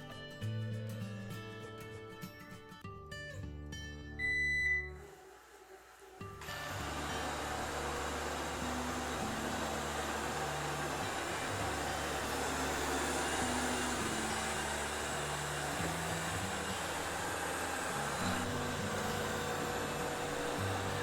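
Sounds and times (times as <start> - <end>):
robot vacuum cleaner whirring: 4.8 - 21.0.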